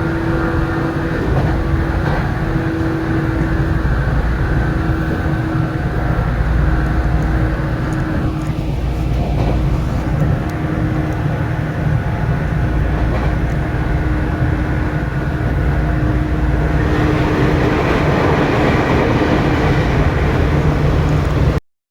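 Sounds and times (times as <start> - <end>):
train motor hum: 0.0 - 21.6
train wheels rumbling on rails: 0.0 - 21.6.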